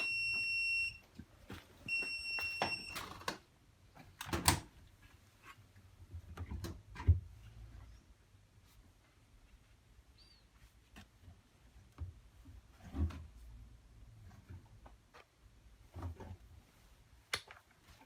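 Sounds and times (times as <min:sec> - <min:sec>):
washing machine beeping: 0:00.0 - 0:01.1, 0:01.8 - 0:03.4.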